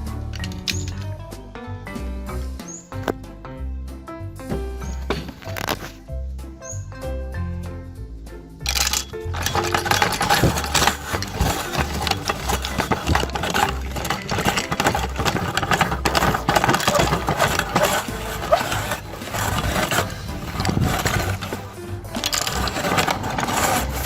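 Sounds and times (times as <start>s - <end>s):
electric meat grinder grinding candy: 8.8s - 24.0s.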